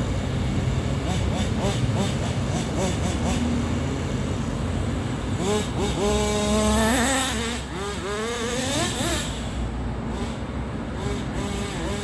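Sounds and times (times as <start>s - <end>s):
nitro engine revving: 1.0s - 3.8s, 5.3s - 10.4s, 11.0s - 12.0s.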